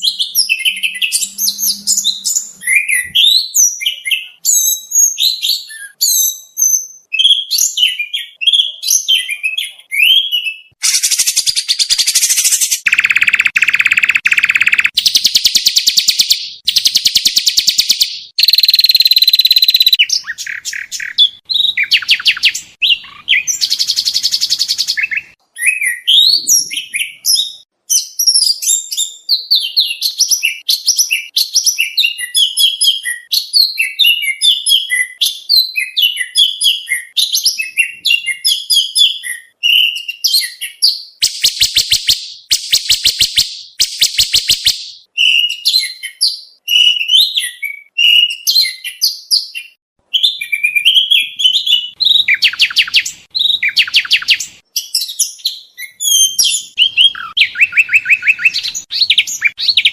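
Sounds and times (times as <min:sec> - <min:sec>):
bird song whistled phrases: 0:00.0 - 0:59.9
harsh rapid bird rattling trills: 0:10.8 - 0:25.2.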